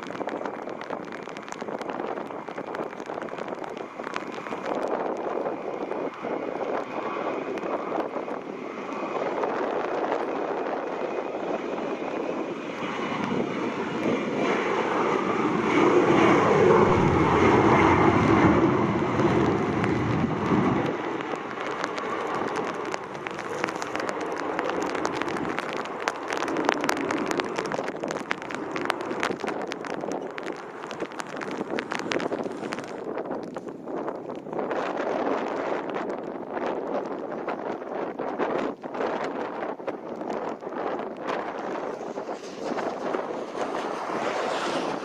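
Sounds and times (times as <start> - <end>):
wind crackling on microphone: 0.0 - 45.0
airplane passing: 0.1 - 33.6, 41.1 - 45.0.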